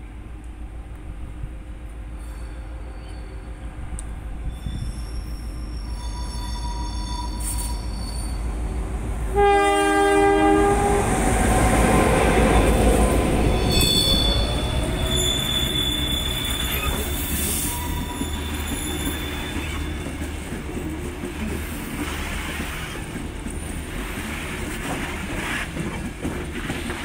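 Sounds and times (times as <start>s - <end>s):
diesel locomotive passing: 0.0s - 27.0s
high wheel squeal: 4.4s - 8.7s, 13.4s - 20.4s
train horn: 9.3s - 11.6s.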